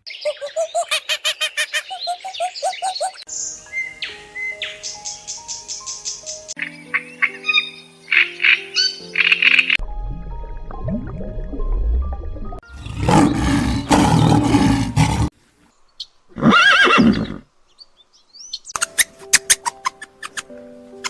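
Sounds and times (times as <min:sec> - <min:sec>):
background music: 0:03.3 - 0:15.3, 0:18.8 - 0:21.0
rough animal call: 0:12.7 - 0:15.3
horse whinnying: 0:16.4 - 0:17.4.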